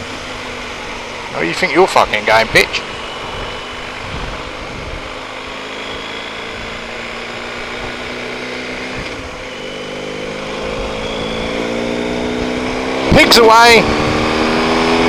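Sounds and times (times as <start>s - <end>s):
motorcycle engine running: 0.0s - 15.0s
wind noise: 2.4s - 5.2s, 10.6s - 14.9s.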